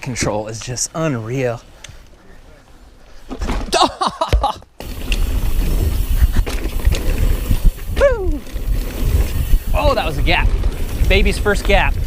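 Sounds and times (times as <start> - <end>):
bike tyres on dirt trail: 4.5 - 12.0
wind rumble on microphone: 5.1 - 12.0
person exclaiming: 7.9 - 8.5.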